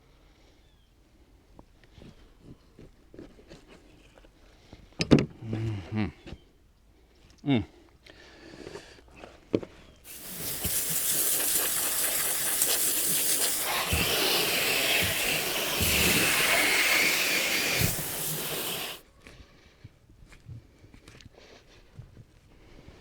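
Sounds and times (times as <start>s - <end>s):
reciprocating saw cutting: 10.1s - 19.0s.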